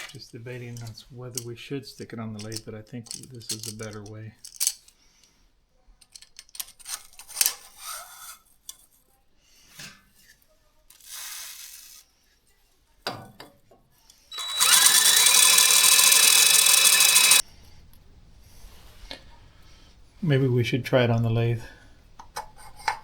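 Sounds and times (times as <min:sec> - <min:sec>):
metal parts clicking and scraping: 0:02.4 - 0:05.0, 0:14.4 - 0:17.4
power drill spinning: 0:14.3 - 0:17.4.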